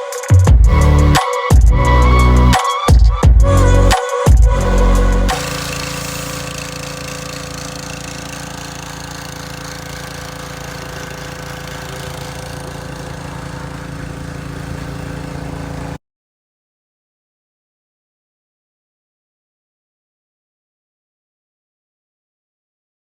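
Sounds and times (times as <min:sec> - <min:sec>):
engine humming steadily: 0:03.3 - 0:16.0.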